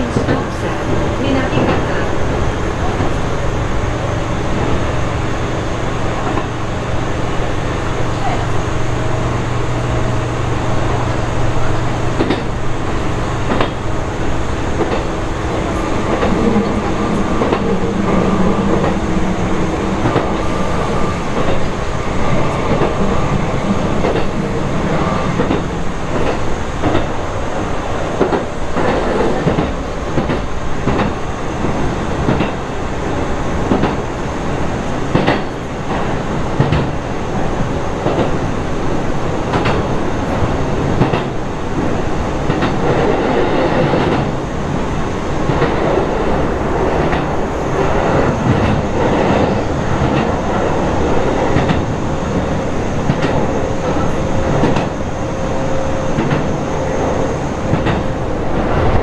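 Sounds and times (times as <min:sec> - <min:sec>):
train rumbling: 0:00.0 - 0:59.0
wheels clacking over rail joints: 0:11.7 - 0:13.9.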